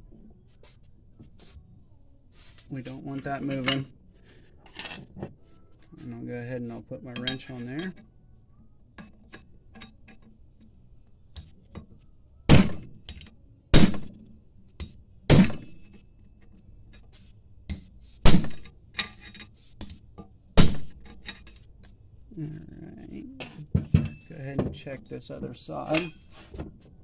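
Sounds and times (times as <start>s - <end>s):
hammer striking metal wrench: 14.8s - 16.0s, 17.7s - 20.0s, 20.6s - 21.7s, 25.9s - 26.5s.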